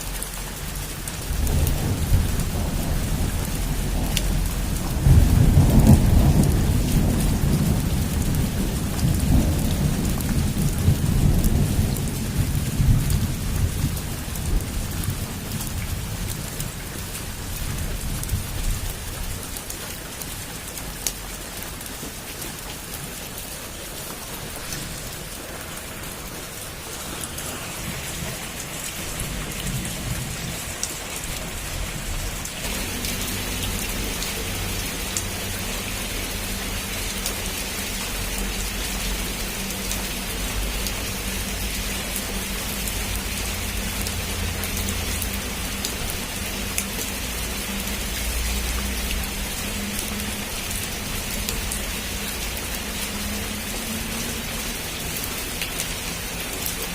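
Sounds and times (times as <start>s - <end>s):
heavy rain on a roof: 0.0s - 56.9s
thunder rolling: 1.2s - 16.3s, 24.2s - 35.9s.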